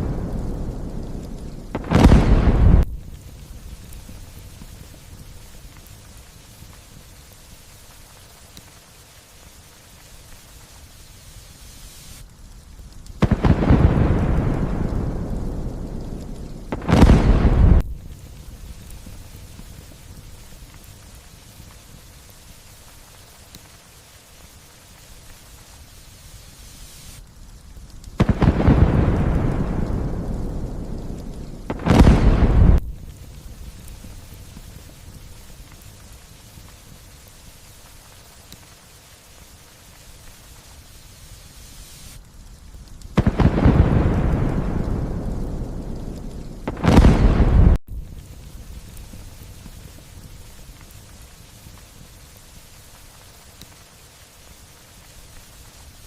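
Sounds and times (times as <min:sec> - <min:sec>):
thunderclap and rumbling: 0:00.0 - 0:05.4, 0:13.2 - 0:20.8, 0:28.2 - 0:36.1, 0:43.1 - 0:51.2
light steady rain: 0:00.0 - 0:56.0.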